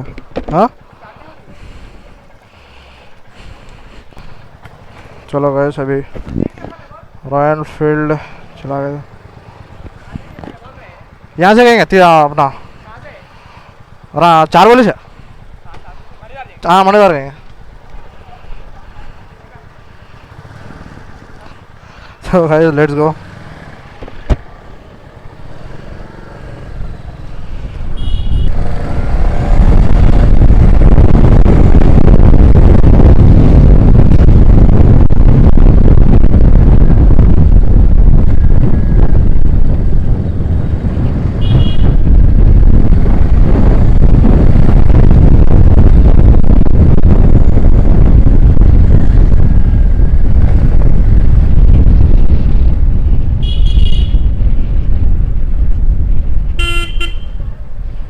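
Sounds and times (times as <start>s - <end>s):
motorcycle riding through traffic: 0.0s - 58.0s
wind rush on microphone: 0.0s - 58.0s
short horn toots: 28.0s - 28.6s, 41.4s - 42.1s, 53.4s - 54.3s, 56.6s - 57.5s.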